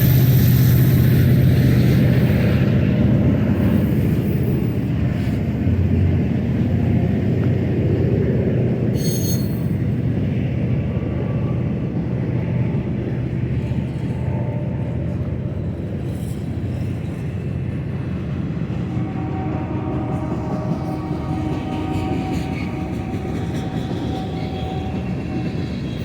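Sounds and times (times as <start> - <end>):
train wheels rumbling on rail: 0.0 - 26.0
high-pitched wheel squeal: 9.0 - 9.8.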